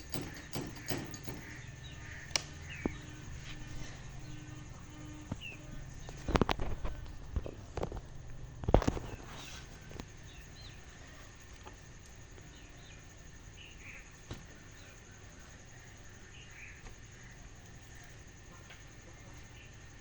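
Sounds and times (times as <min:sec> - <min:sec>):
faint bird chirps: 0:00.0 - 0:07.2, 0:08.8 - 0:20.0.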